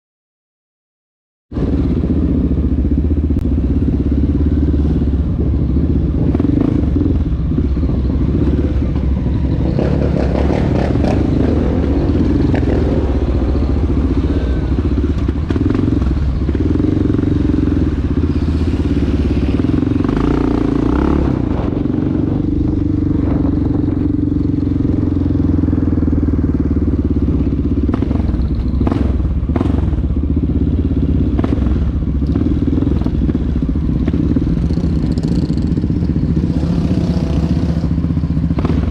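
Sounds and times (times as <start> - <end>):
dirt bike engine running: 1.6 - 38.9.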